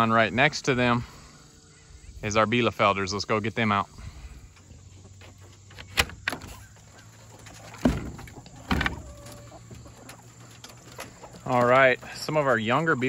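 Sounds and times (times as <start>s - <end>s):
corrugated panel rattling: 5.5s - 13.0s
coop door unlatching clicks: 5.7s - 6.6s.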